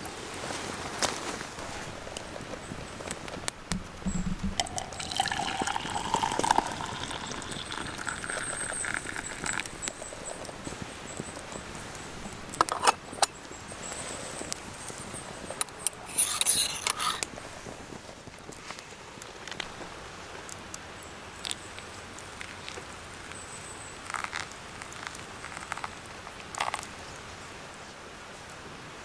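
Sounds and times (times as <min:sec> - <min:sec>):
liquid pouring into container: 0:03.9 - 0:10.0.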